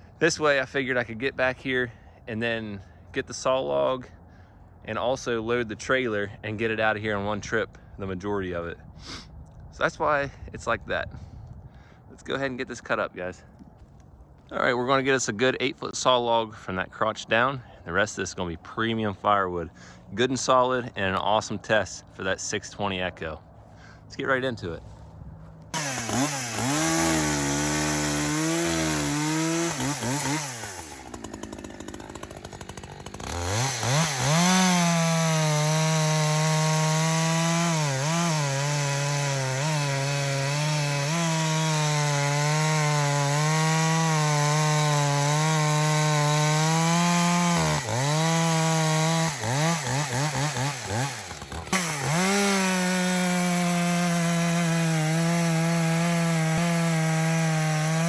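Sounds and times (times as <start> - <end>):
chainsaw revving and cutting log: 25.7 - 58.0.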